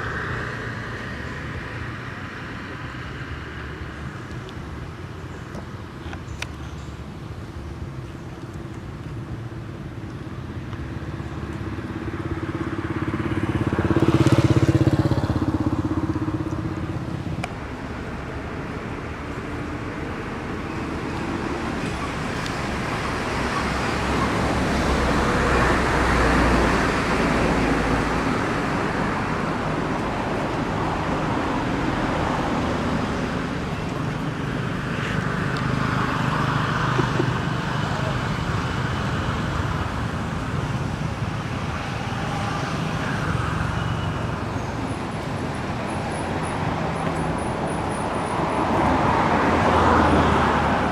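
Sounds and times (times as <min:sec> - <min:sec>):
traffic background: 0:00.0 - 0:50.9
vehicles passing on road: 0:00.0 - 0:50.9.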